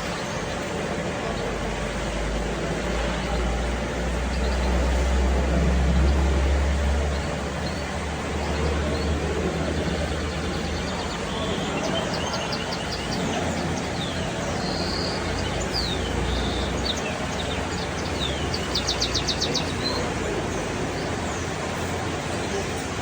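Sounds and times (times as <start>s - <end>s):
birds chirping and whistling: 5.8s - 23.0s.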